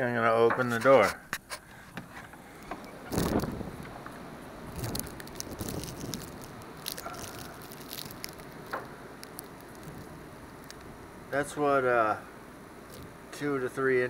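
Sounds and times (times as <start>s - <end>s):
snow crunching: 4.7s - 10.8s.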